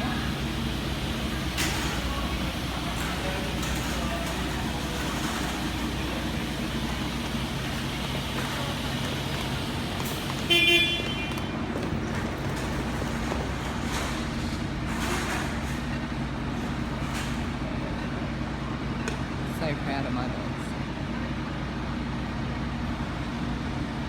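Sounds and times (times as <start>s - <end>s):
traffic with idling engines: 0.0s - 24.0s
car horn toot: 10.4s - 11.6s.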